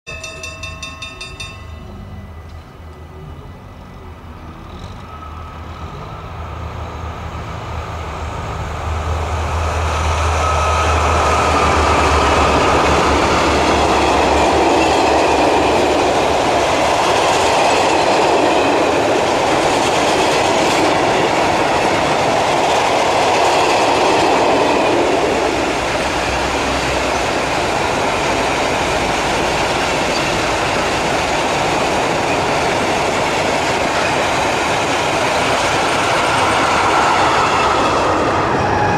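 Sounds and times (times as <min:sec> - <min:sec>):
locomotive humming: 0:00.1 - 0:38.9
train wheels rumbling on rails: 0:00.1 - 0:38.9
wheel squeal: 0:29.8 - 0:31.1.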